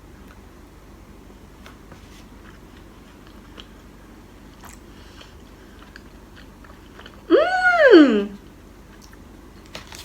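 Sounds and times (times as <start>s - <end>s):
wet mouth clicks and chewing: 4.5s - 7.3s, 8.9s - 9.2s.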